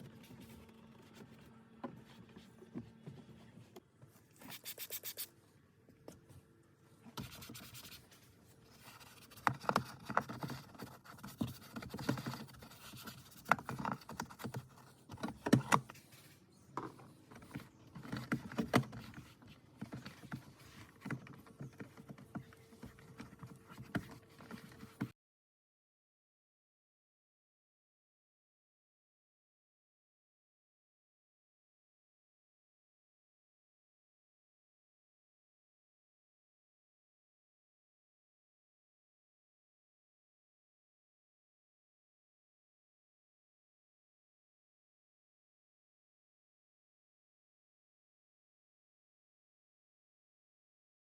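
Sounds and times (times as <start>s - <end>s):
scratchy brushing and rubbing: 4.4s - 5.3s, 7.2s - 14.8s.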